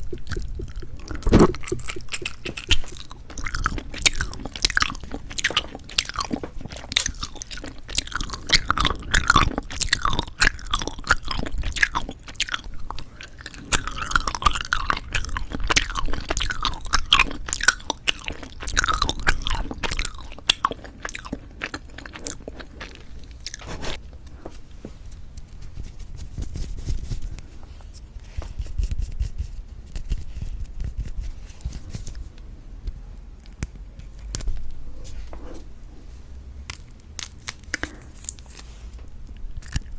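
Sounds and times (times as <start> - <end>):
chewing jelly candy: 0.0 - 24.0, 36.6 - 38.6, 39.2 - 39.9.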